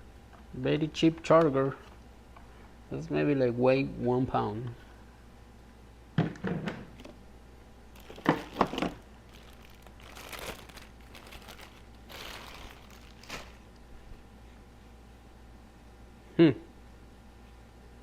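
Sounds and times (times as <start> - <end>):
plastic packaging rustling: 7.9 - 13.8.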